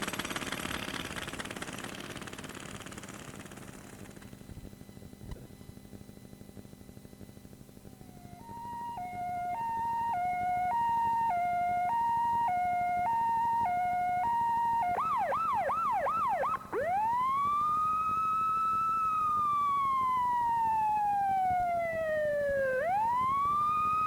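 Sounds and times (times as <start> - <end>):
emergency siren: 7.8 - 24.0.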